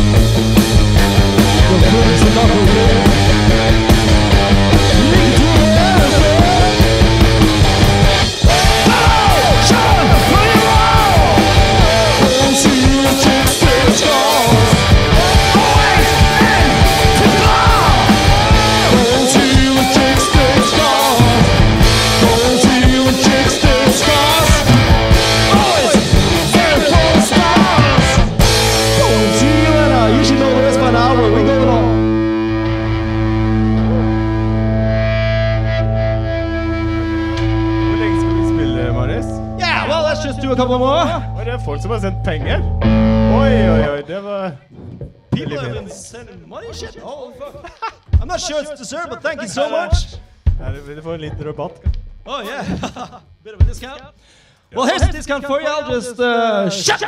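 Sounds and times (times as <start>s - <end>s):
drum kit: 0.0s - 35.2s, 47.4s - 48.9s, 49.8s - 56.1s
electric guitar: 0.0s - 44.1s.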